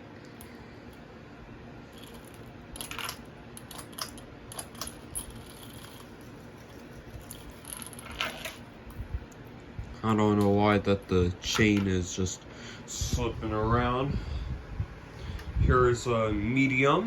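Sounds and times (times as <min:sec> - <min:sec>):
ceiling fan humming: 0:00.0 - 0:17.0.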